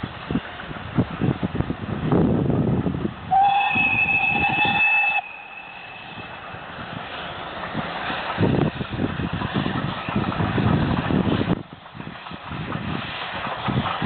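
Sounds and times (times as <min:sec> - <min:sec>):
moving train rumble: 0:00.0 - 0:14.0
steam locomotive whistle: 0:03.3 - 0:06.4.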